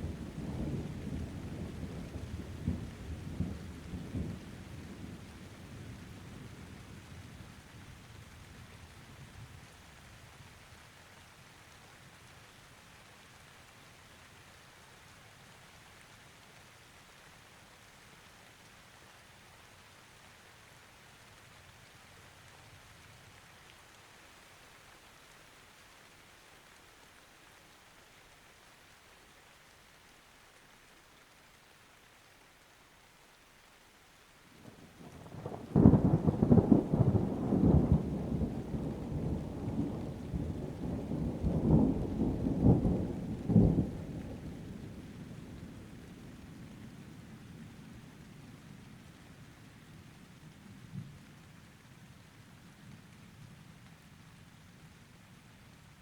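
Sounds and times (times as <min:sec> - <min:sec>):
faint rain hiss: 0:00.0 - 0:56.0
low thunder rumble: 0:35.0 - 0:46.4.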